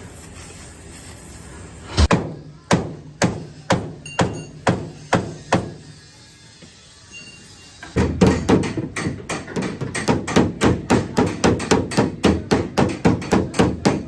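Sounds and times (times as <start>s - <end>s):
hammer blows on car body metal: 2.1s - 5.8s, 8.0s - 14.0s.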